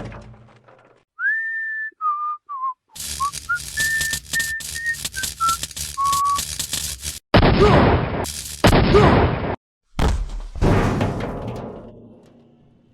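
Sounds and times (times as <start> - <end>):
person whistling a tune: 1.2 - 6.3
welding arc crackling hiss: 3.0 - 7.2, 8.2 - 8.9.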